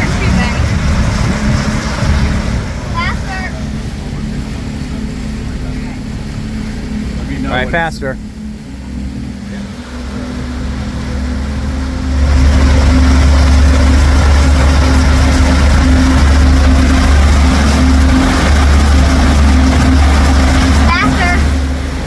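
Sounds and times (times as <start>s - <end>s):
motorboat engine speeding up: 0.0s - 22.0s
rush of water noise: 0.0s - 22.0s.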